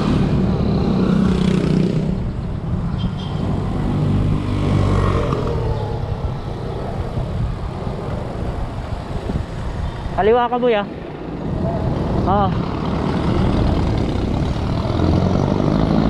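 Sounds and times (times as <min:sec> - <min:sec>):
wind rumble on microphone: 0:00.0 - 0:14.9.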